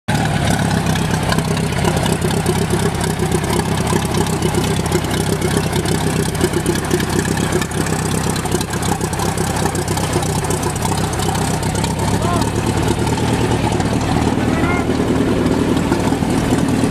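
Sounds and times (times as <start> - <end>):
tractor engine idling: 0.1 - 16.9.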